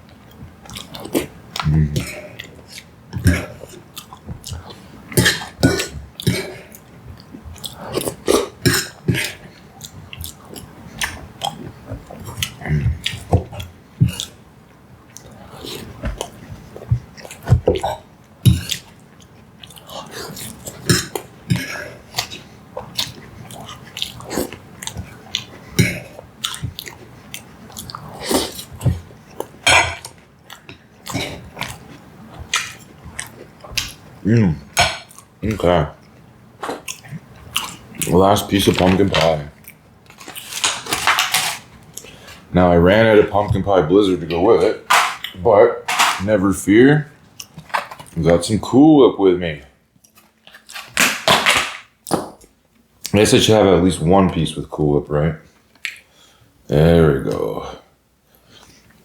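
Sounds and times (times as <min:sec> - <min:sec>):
person chewing food: 0:00.0 - 0:42.5, 0:47.2 - 0:48.2, 0:50.0 - 0:53.1
person eating mouth sounds: 0:00.6 - 0:14.4, 0:15.1 - 0:41.0.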